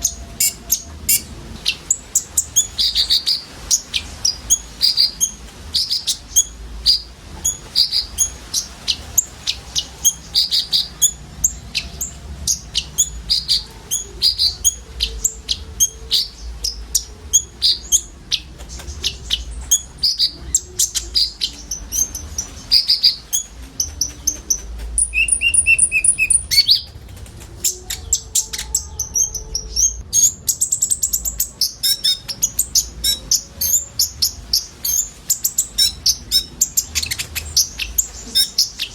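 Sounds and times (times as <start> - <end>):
sunbird sharp high chirps: 0.0 - 26.9.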